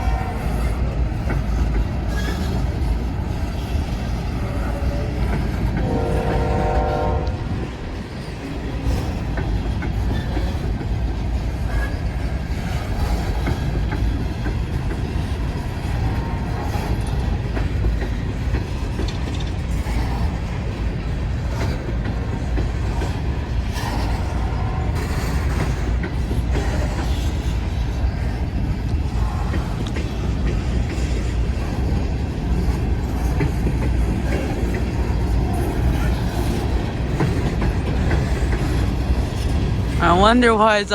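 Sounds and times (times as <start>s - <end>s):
train horn: 0.0s - 0.8s, 5.8s - 7.6s
freight train wheels clattering: 0.0s - 40.8s
train cars clanking: 0.0s - 40.9s.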